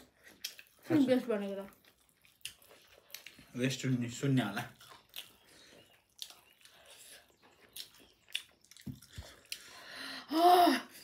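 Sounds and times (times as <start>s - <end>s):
wet chewing mouth clicks: 0.0s - 0.9s, 1.5s - 3.6s, 4.6s - 9.8s.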